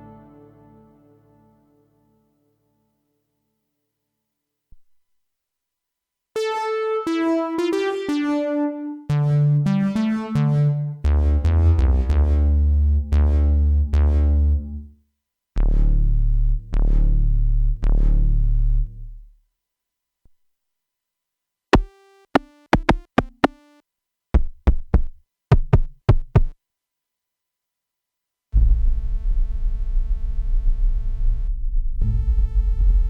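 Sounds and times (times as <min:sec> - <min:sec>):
synthesizer notes and chords: 0:06.4 - 0:14.9, 0:21.8 - 0:23.8
deep synth bass: 0:09.1 - 0:14.9, 0:15.6 - 0:19.3, 0:28.6 - 0:33.0.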